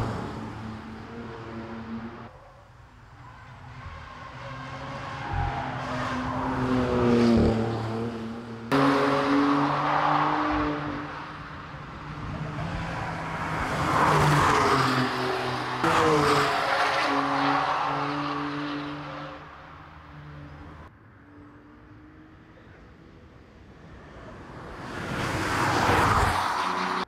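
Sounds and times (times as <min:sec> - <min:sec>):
car engine passing hard: 0:04.3 - 0:20.0.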